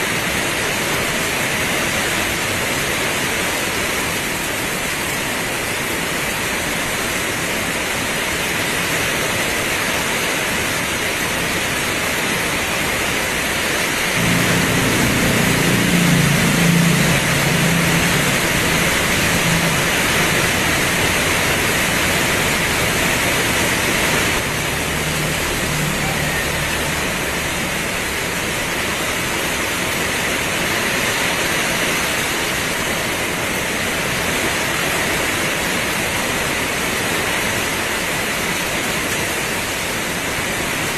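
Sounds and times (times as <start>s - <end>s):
heavy rain pouring: 0.0s - 40.9s
low rumble: 14.2s - 29.6s.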